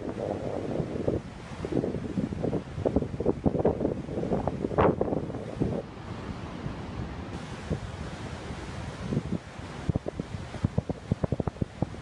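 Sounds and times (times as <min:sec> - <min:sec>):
ocean surf on sandy beach: 0:00.0 - 0:12.0
wind buffeting microphone: 0:00.0 - 0:12.0.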